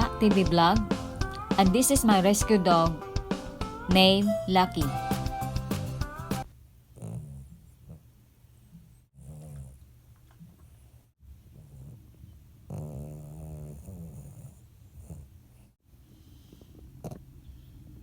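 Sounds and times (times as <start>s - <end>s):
dog snoring: 6.9s - 18.0s.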